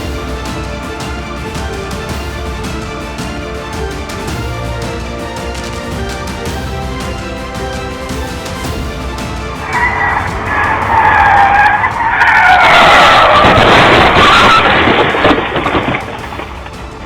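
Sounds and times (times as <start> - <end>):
car tyres screeching: 4.8 - 17.0.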